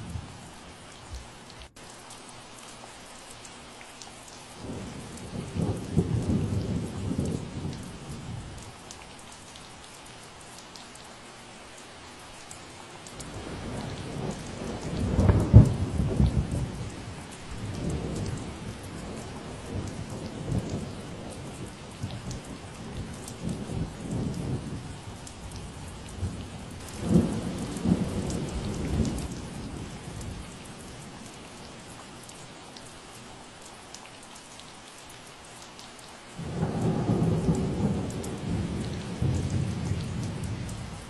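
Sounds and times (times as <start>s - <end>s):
steady rain: 0.0s - 41.0s
thunder rolling: 26.2s - 29.8s, 36.4s - 40.9s.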